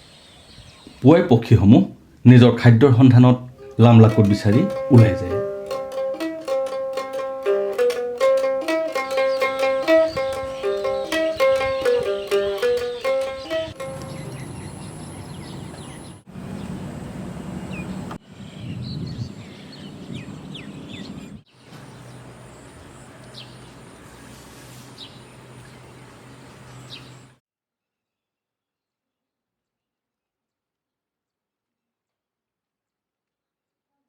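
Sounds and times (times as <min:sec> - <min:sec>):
birds chirping: 0:00.0 - 0:05.8, 0:08.6 - 0:27.4
city traffic rumble: 0:13.0 - 0:27.4.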